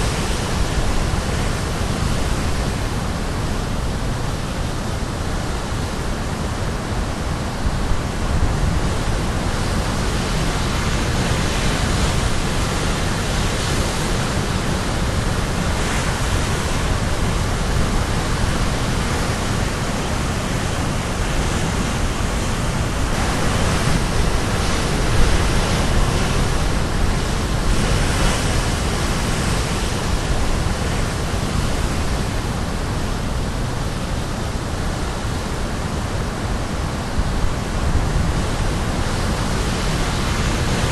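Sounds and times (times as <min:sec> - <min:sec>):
waves crashing on shore: 0:00.0 - 0:40.9.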